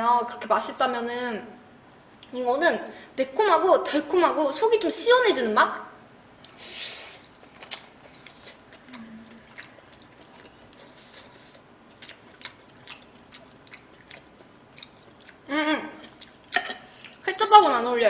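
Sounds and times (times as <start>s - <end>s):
person chewing food: 6.4s - 17.3s.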